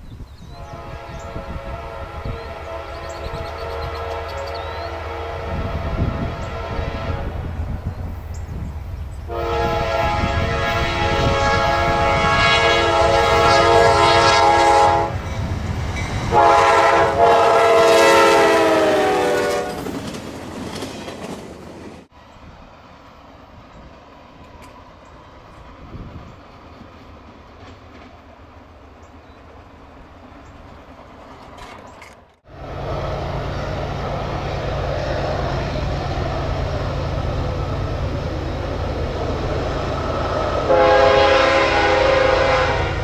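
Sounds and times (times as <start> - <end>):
passing train rumble: 0.0 - 43.0
locomotive air horn: 0.5 - 7.7, 9.3 - 15.2, 16.3 - 19.9, 32.5 - 43.0.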